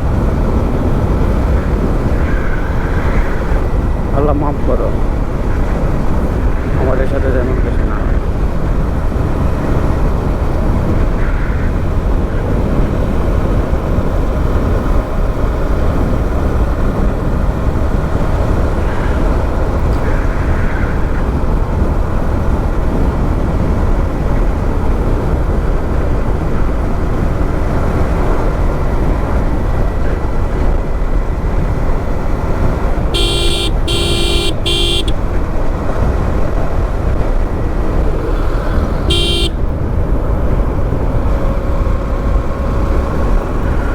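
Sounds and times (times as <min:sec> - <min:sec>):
road noise: 0:00.0 - 0:43.9
wind noise: 0:00.0 - 0:43.9
motorcycle engine rumbling: 0:07.8 - 0:43.9
horn beeping: 0:33.1 - 0:35.3, 0:39.0 - 0:39.6.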